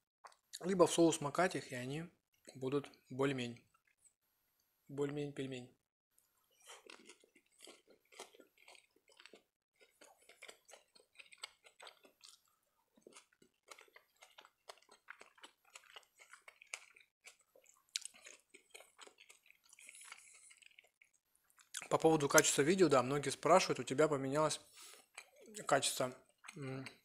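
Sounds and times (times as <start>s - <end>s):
chewing with mouth clicks: 6.5s - 22.0s, 24.8s - 27.0s.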